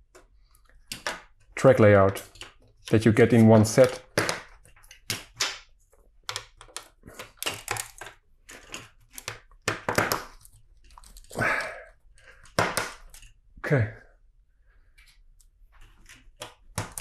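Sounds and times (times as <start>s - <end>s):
plastic bricks clicking together: 2.1s - 11.4s.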